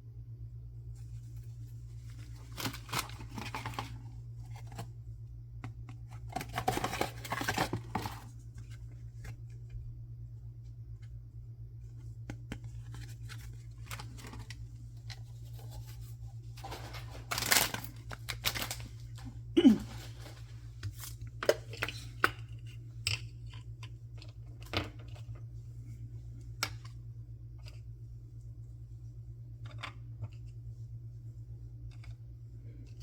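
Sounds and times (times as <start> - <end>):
steady low hum: 0.0 - 33.0
packaging tearing and crinkling: 16.9 - 19.0.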